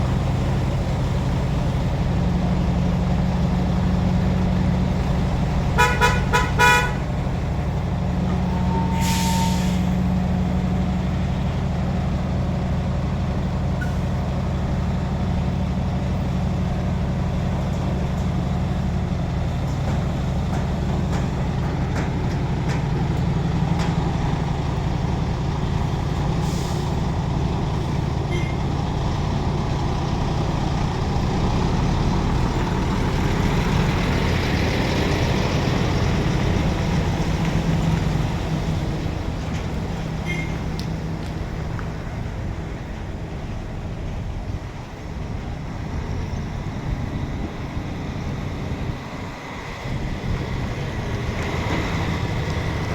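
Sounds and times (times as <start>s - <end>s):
truck diesel engine running: 0.0s - 52.9s
horn toot: 5.8s - 7.1s
air brake hiss: 8.8s - 10.0s, 26.4s - 27.0s.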